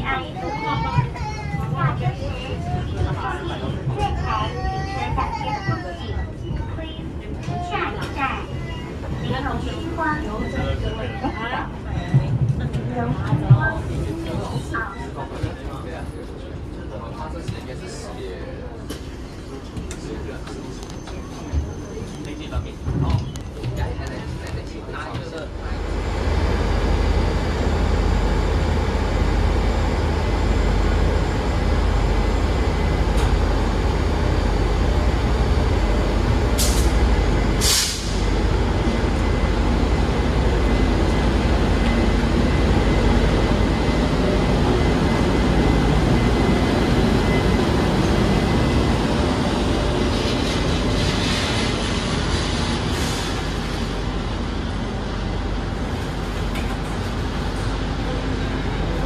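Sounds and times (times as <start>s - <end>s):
train rumble inside carriage: 0.0s - 59.0s
short hisses: 37.6s - 38.3s.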